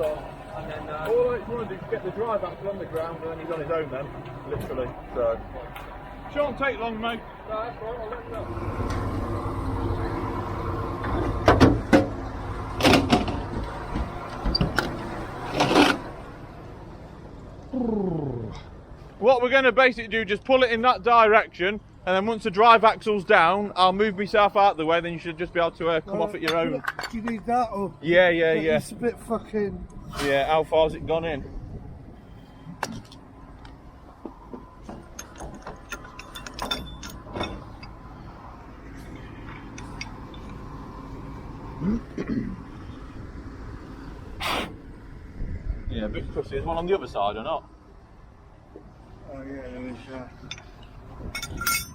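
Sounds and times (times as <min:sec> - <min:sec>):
diesel engine idling: 0:00.0 - 0:26.5, 0:31.6 - 0:45.9
sharp knocks and clatters: 0:11.0 - 0:12.2, 0:12.8 - 0:16.1, 0:34.2 - 0:38.0
metallic clinks and knocks: 0:34.9 - 0:38.0, 0:39.5 - 0:40.6, 0:50.4 - 0:51.9.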